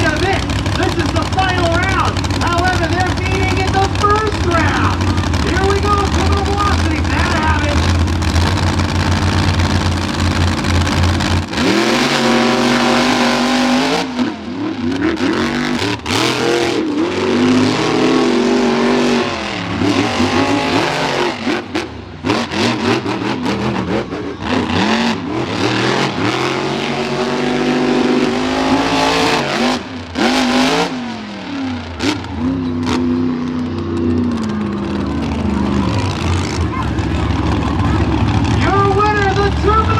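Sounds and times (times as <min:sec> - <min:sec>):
monster truck engines racing: 0:00.0 - 0:39.9.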